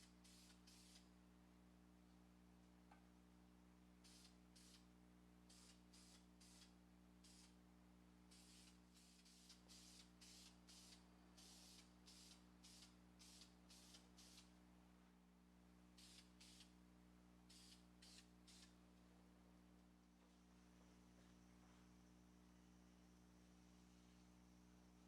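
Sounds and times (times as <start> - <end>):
steady low hum: 0.0 - 25.0
aerosol spray paint hissing: 0.2 - 1.0, 4.0 - 4.8, 5.5 - 7.6, 8.3 - 14.5, 16.0 - 16.7, 17.5 - 18.8.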